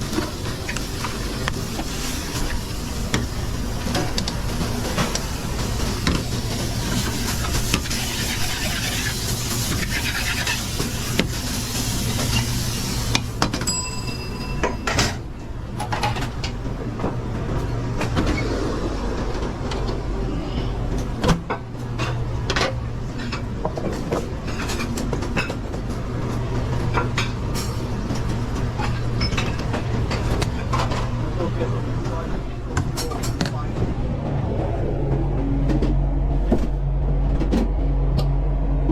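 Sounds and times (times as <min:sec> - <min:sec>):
pans and utensils clattering: 0:00.0 - 0:15.2, 0:21.5 - 0:31.2
ventilation hum: 0:00.0 - 0:38.9.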